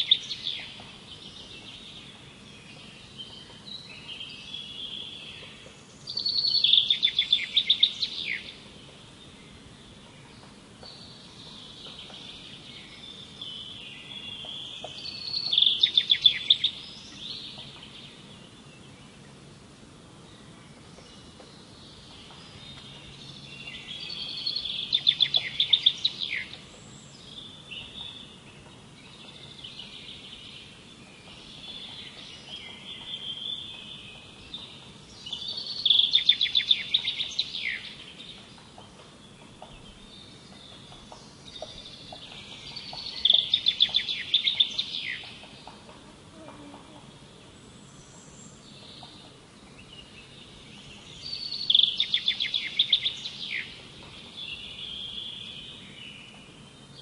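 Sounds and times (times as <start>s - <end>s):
songbird singing: 0.0s - 57.0s.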